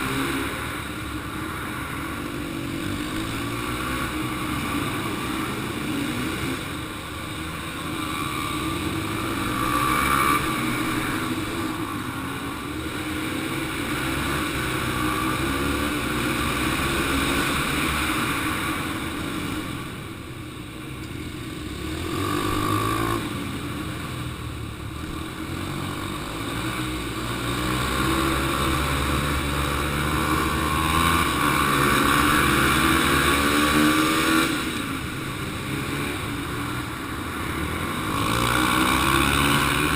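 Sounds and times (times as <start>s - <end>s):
dirt bike engines racing: 0.0s - 39.9s.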